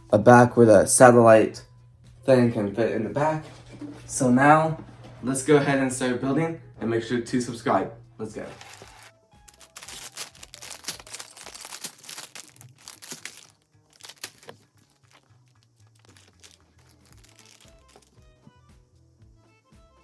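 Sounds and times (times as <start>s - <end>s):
background music: 0.0s - 20.0s
plastic bags crinkling and tearing: 8.5s - 18.2s.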